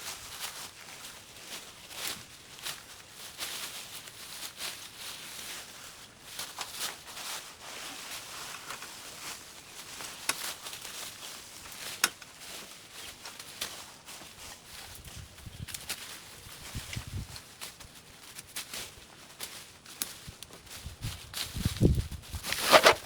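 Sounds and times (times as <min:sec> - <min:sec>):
brush rustling and crackling: 0:00.0 - 0:23.0
branches snapping: 0:22.4 - 0:23.0.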